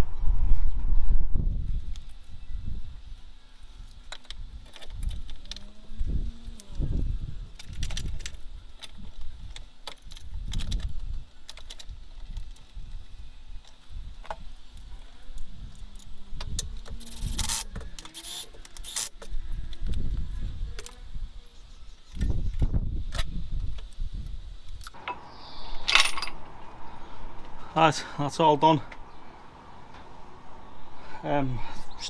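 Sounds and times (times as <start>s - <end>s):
metal tools clinking and rattling: 25.8s - 26.5s.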